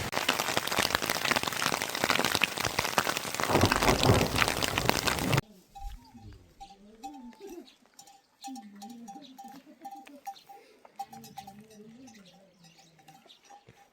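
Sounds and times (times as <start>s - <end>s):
animal neck bells clinking: 5.7s - 13.9s.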